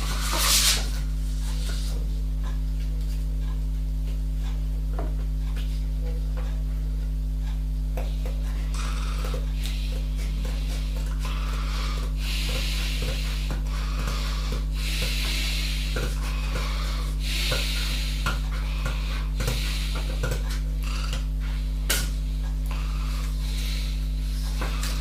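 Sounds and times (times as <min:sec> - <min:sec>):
scraping or rubbing noises: 0:00.0 - 0:02.0
steady low hum: 0:00.0 - 0:25.0.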